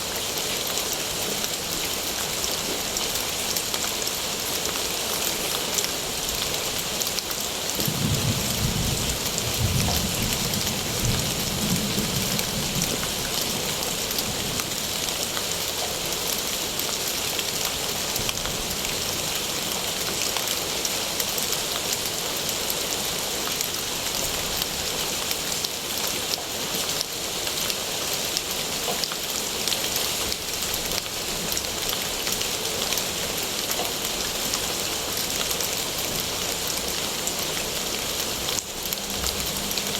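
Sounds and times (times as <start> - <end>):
rain falling: 0.0 - 39.9
low rumble: 38.8 - 39.9.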